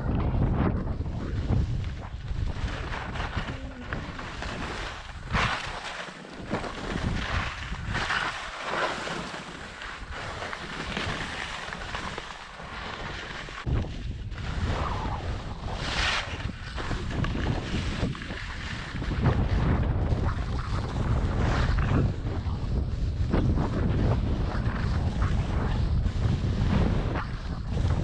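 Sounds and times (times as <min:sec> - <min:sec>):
wind buffeting microphone: 0:00.0 - 0:28.0
skis scraping over snow: 0:01.1 - 0:28.0.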